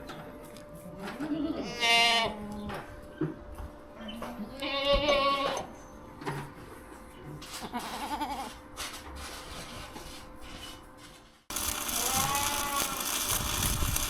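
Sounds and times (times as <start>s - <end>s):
goats bleating: 11.7s - 13.2s.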